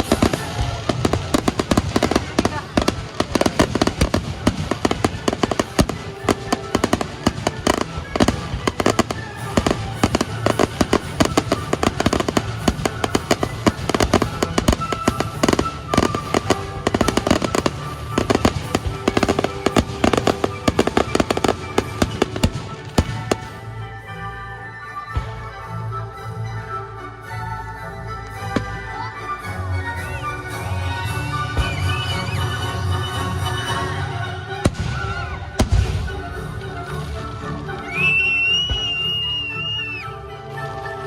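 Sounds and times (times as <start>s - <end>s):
fireworks bangs and crackles: 0.0s - 23.9s, 30.7s - 32.8s, 33.6s - 36.8s, 37.8s - 39.8s
music playing: 0.0s - 41.0s.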